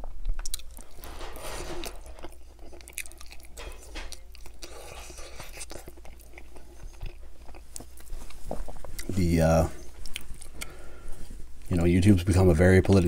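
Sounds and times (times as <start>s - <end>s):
chewing meat: 0.1s - 1.1s, 1.8s - 10.8s
mouth clicks and smacks: 10.0s - 10.7s.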